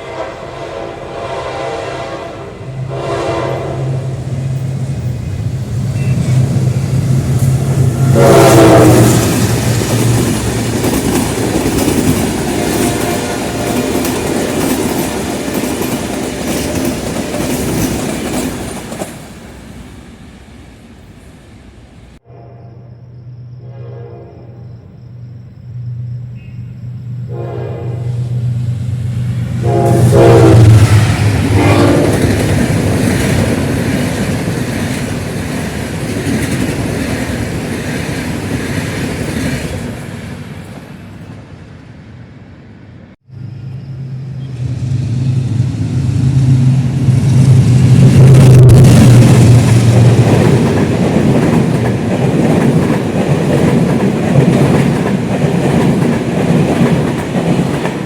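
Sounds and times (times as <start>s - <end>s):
train horn blasts: 0.0s - 4.6s, 5.9s - 6.5s, 7.7s - 9.5s, 12.4s - 14.1s, 22.2s - 25.0s, 26.4s - 28.6s, 29.6s - 32.5s
diesel locomotive engine: 0.0s - 58.0s
train passing close by: 0.0s - 58.0s
train wheels clattering on rails: 4.4s - 19.8s, 30.7s - 41.4s, 44.5s - 58.0s.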